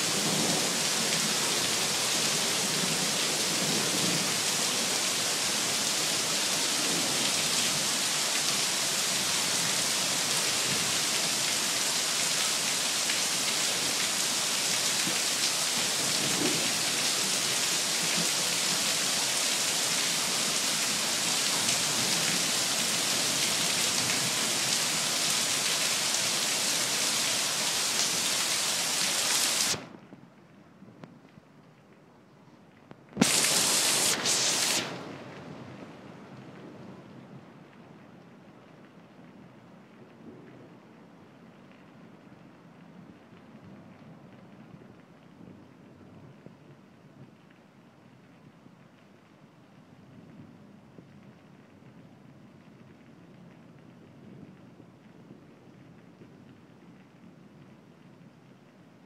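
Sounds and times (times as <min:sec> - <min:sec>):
heavy rain pouring: 0:00.0 - 0:30.1, 0:33.2 - 0:36.6.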